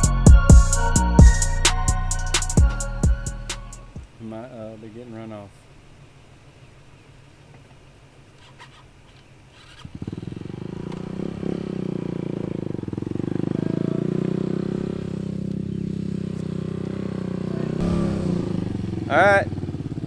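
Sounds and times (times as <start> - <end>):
motorcycle engine starting and running: 8.4 - 20.0.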